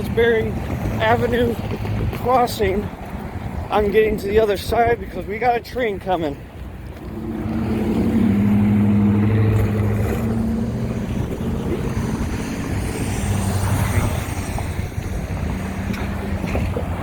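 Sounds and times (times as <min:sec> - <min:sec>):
wind on microphone: 0:00.0 - 0:17.0
engine humming: 0:06.4 - 0:17.0.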